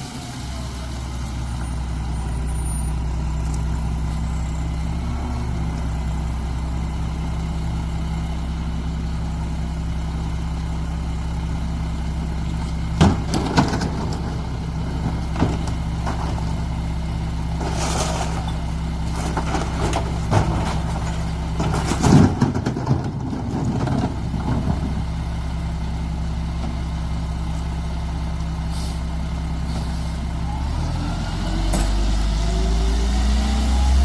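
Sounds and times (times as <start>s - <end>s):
diesel engine idling: 0.0s - 31.0s
clanks: 12.6s - 16.8s, 17.6s - 25.2s.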